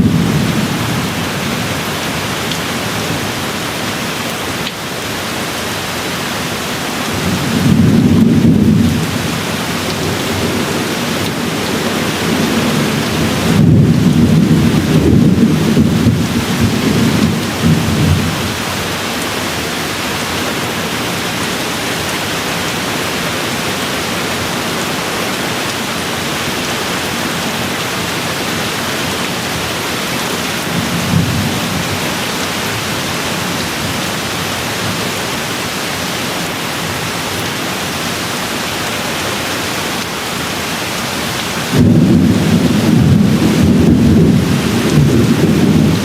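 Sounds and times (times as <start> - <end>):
thunder rumbling: 0.0 - 1.8, 7.1 - 19.6, 41.7 - 46.0
steady rain falling: 0.0 - 46.0.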